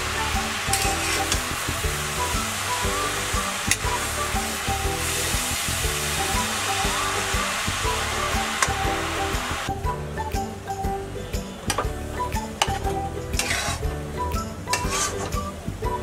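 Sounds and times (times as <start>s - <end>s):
carrots sizzling in hot fat: 0.0s - 9.8s, 12.0s - 14.0s, 14.6s - 15.6s
background music: 0.0s - 16.0s.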